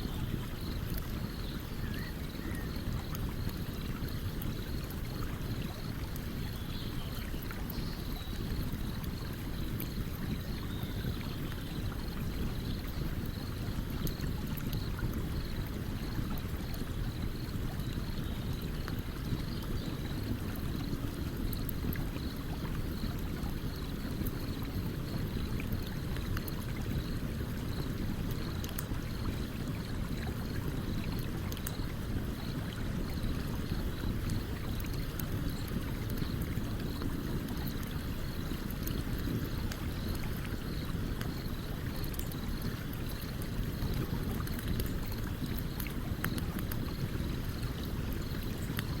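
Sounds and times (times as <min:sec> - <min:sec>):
campfire crackling and popping: 0:18.5 - 0:49.0
stream flowing: 0:20.0 - 0:49.0.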